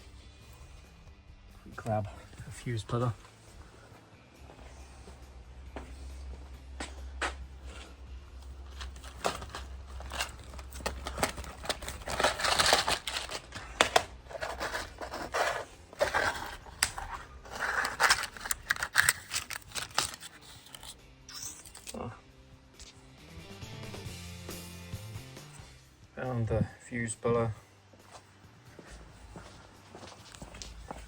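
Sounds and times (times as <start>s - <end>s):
clicks scrapes and rustles: 7.7s - 22.0s.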